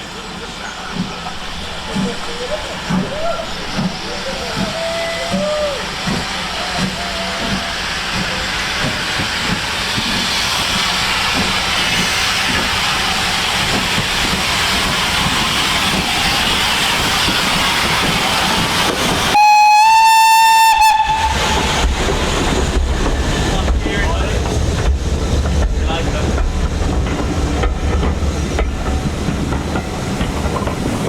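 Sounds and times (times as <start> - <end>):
steam locomotive hissing: 0.0 - 31.0
steam whistle blast: 19.3 - 21.7.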